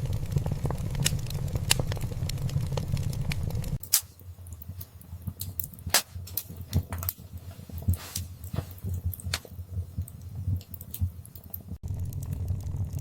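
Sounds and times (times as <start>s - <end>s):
fire pops and snaps: 0.0s - 13.0s
low rumble of flames: 0.0s - 13.0s
wood fire crackling: 0.0s - 13.0s.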